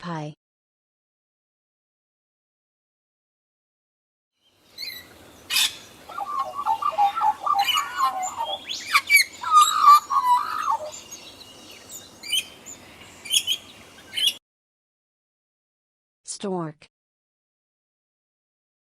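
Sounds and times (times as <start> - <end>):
magpie calling: 4.8 - 11.3, 13.2 - 14.4.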